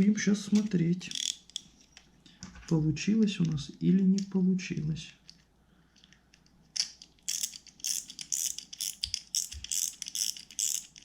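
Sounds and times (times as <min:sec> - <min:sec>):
fishing reel clicking: 0:07.3 - 0:11.0.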